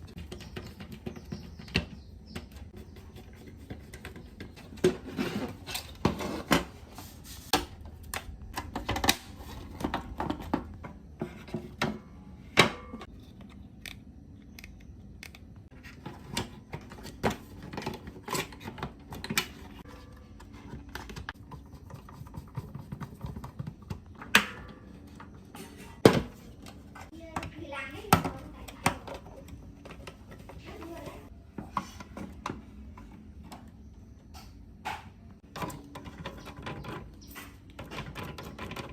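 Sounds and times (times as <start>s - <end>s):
low room hum: 0.0s - 38.9s.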